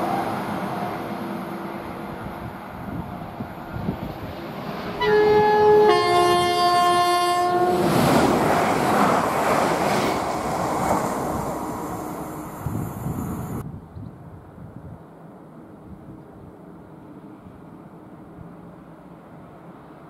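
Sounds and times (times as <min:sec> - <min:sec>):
train wheels rushing on rail: 0:00.0 - 0:13.7
two-note electric train horn: 0:05.0 - 0:07.9.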